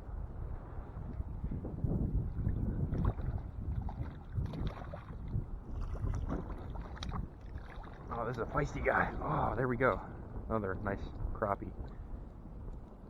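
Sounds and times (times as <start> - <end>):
wind rumbling on microphone: 0.0 - 13.0
light water splashes: 2.2 - 10.2.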